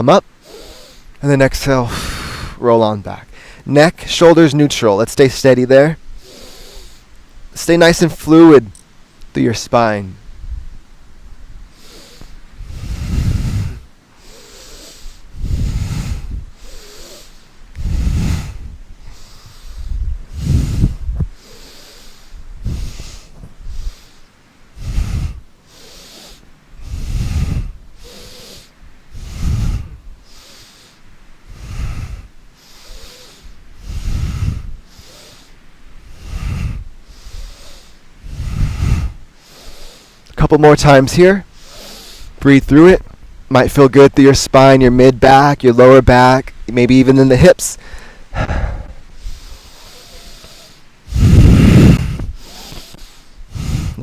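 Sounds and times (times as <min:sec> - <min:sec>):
person breathing forcefully: 0:00.3 - 0:02.6, 0:03.3 - 0:03.7, 0:06.0 - 0:07.2, 0:11.3 - 0:42.4, 0:47.6 - 0:54.0.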